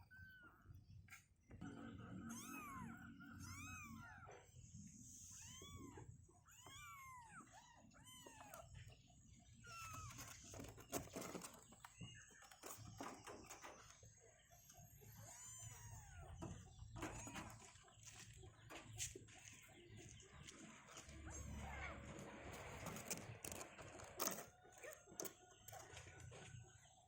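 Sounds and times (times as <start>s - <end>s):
cats meowing faintly: 0.0s - 1.2s, 2.2s - 11.5s, 14.9s - 17.4s, 21.0s - 23.0s.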